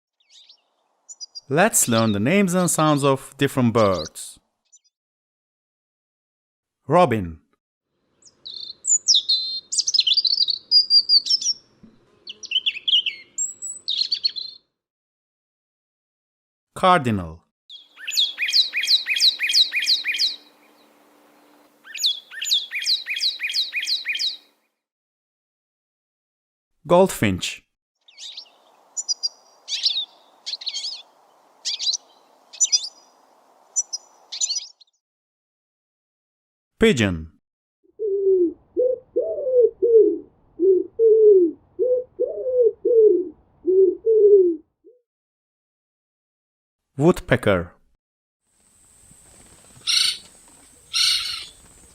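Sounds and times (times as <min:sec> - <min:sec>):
bird singing down-slurred whistles: 0:08.5 - 0:11.6, 0:12.3 - 0:14.7, 0:17.7 - 0:20.5, 0:21.8 - 0:24.5, 0:28.1 - 0:33.1, 0:33.8 - 0:35.0
pigeon cooing: 0:38.0 - 0:44.7, 0:49.8 - 0:51.9.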